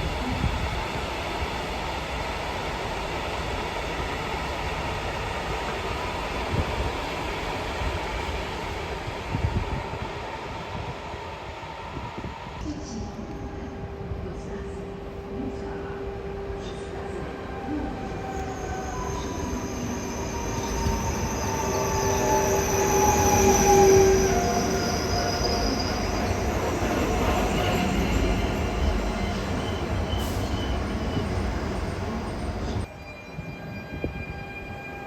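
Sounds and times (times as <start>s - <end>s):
rumble of train wheels: 0.0s - 35.0s
electric train drive whining: 18.3s - 32.9s
wheel and brake squeal: 18.4s - 35.0s.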